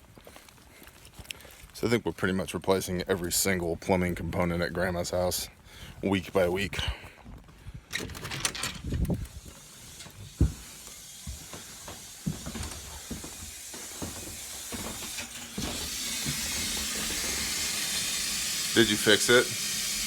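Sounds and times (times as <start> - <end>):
water hissing through pipe: 9.1 - 20.0.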